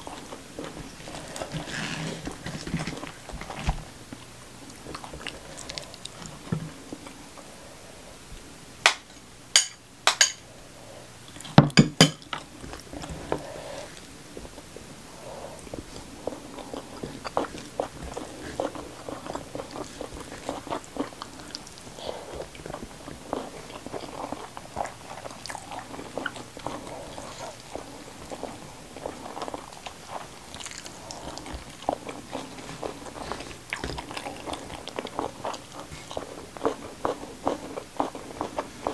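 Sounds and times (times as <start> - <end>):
chewing with wet mouth clicks: 4.2 - 6.4, 15.6 - 38.9.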